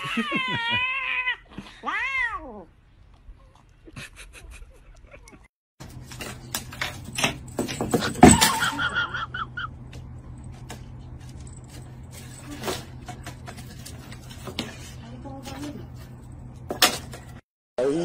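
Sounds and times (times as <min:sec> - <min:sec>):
cat crying: 0:00.0 - 0:02.7.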